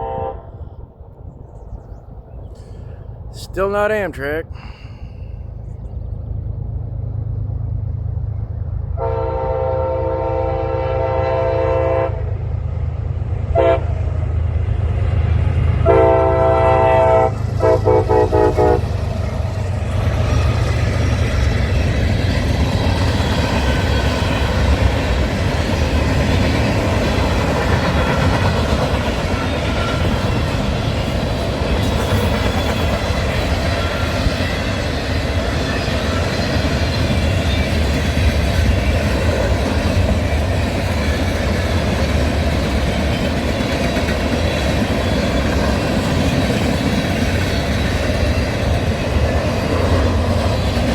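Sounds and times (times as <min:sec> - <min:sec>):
multi-tone train horn: 0:00.0 - 0:00.8, 0:09.0 - 0:12.5, 0:13.5 - 0:14.2, 0:15.8 - 0:19.0
diesel engine rumbling: 0:01.5 - 0:09.0
train wheels on rails: 0:12.4 - 0:50.9.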